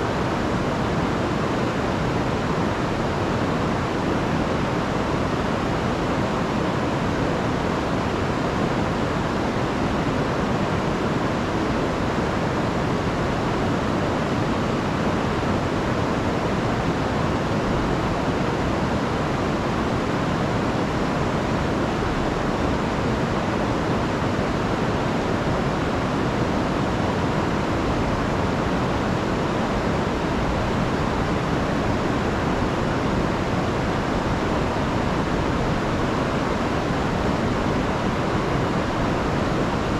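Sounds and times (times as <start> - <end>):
river and waterfall rushing: 0.0 - 39.9.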